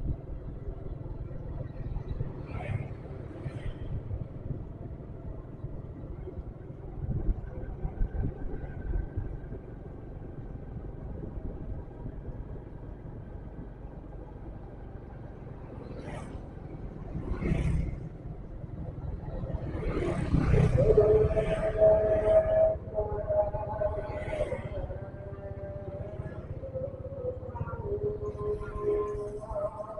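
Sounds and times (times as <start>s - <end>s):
motorcycle engine rumble: 0.0s - 29.9s
passing traffic: 0.0s - 29.9s
wind: 0.0s - 29.9s
wavering held tone: 20.8s - 29.9s.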